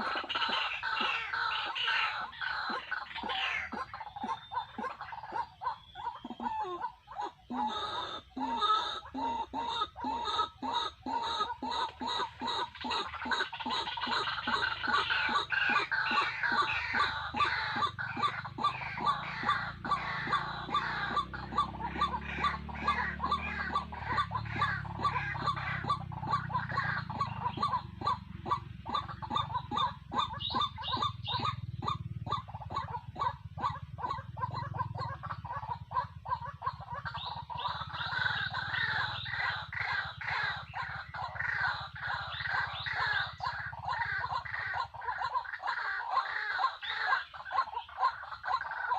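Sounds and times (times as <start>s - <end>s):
waterhen calling: 0.0s - 48.9s
steady low hum: 9.0s - 45.2s.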